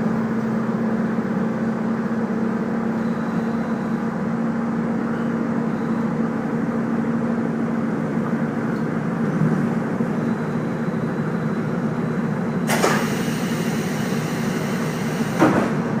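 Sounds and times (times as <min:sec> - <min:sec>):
train running with low hum: 0:00.0 - 0:16.0.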